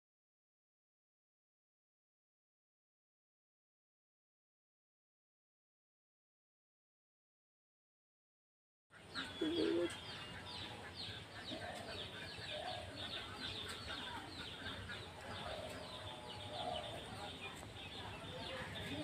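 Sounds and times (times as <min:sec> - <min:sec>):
small birds chirping: 0:08.9 - 0:19.0
fowl clucking: 0:09.0 - 0:15.9.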